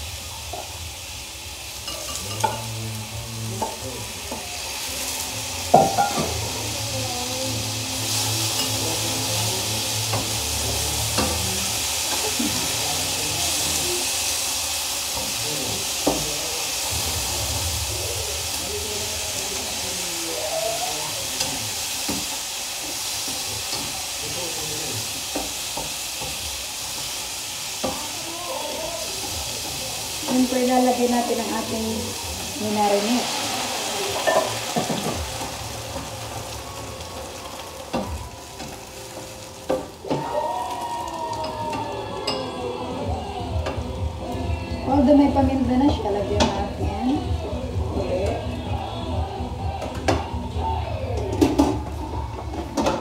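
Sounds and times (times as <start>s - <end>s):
meat sizzling in a pan: 0.0s - 53.0s.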